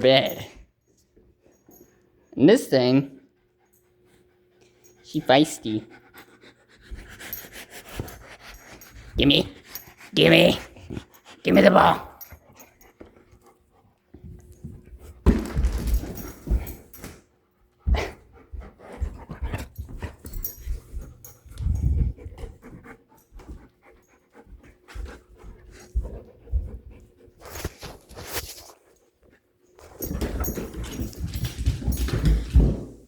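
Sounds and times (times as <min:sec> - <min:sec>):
puppy panting: 0:03.2 - 0:14.2, 0:17.6 - 0:28.1.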